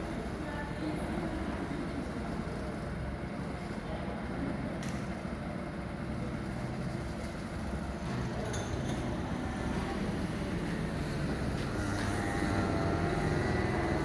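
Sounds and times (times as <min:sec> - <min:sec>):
go-kart engine running: 0:09.6 - 0:14.0.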